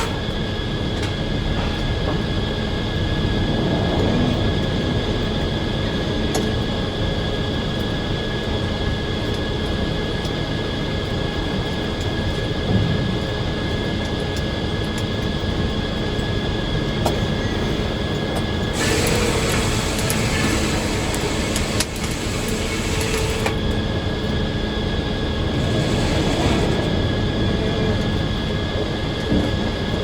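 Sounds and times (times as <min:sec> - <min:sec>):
circular sawmill drone: 0:00.0 - 0:30.0.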